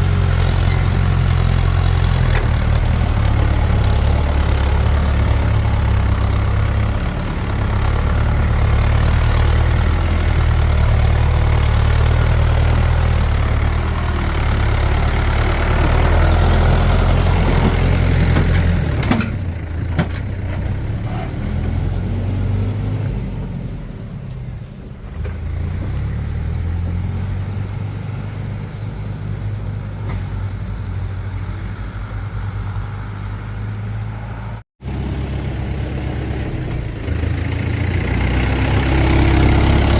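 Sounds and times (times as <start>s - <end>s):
heavy diesel engine running: 0.0s - 27.8s, 34.8s - 39.9s.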